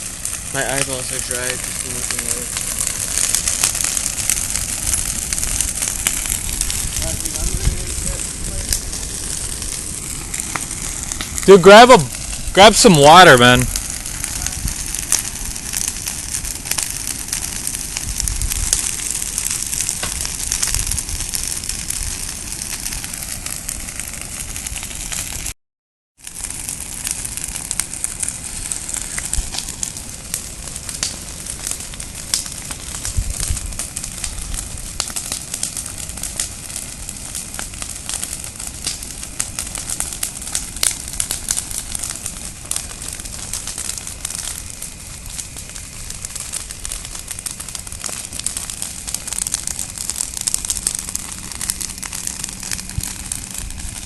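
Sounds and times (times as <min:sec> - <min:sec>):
bonfire hissing: 0:00.0 - 0:25.6, 0:26.2 - 0:54.0
fire crackling and popping: 0:00.0 - 0:25.6, 0:26.2 - 0:54.0.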